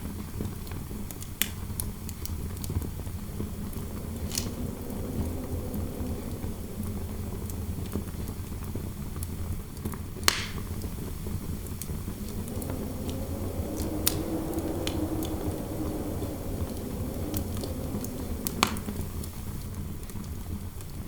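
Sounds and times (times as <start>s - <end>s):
faint wind howl: 2.0s - 9.3s, 10.8s - 21.0s
low wind rumble: 2.3s - 9.2s, 11.0s - 20.0s
wood fire crackling: 2.6s - 8.7s, 11.6s - 19.7s.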